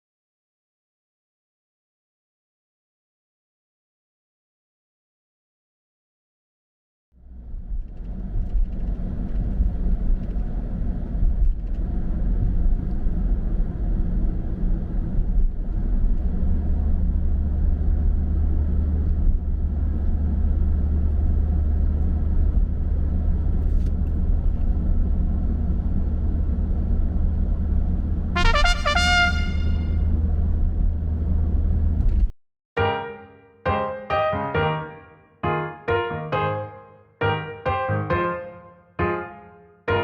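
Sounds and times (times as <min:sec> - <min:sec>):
car engine and road rumble: 0:07.2 - 0:32.3.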